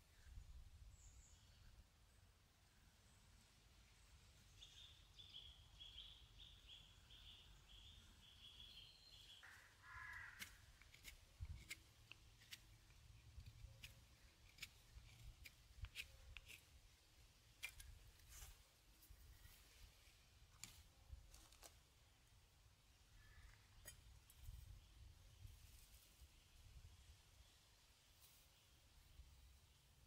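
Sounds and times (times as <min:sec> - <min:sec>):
bird chirping: 0:00.1 - 0:02.2, 0:03.9 - 0:11.8.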